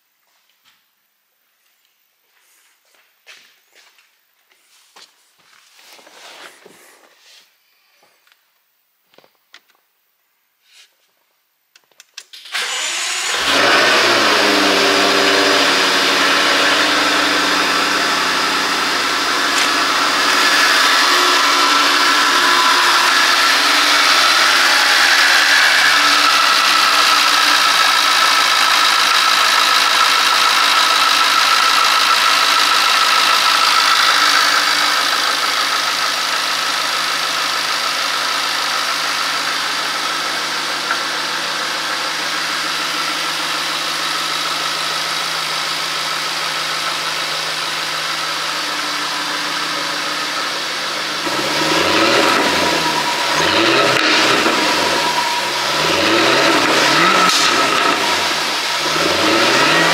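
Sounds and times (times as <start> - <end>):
car engine starting and idling: 12.3 - 59.9.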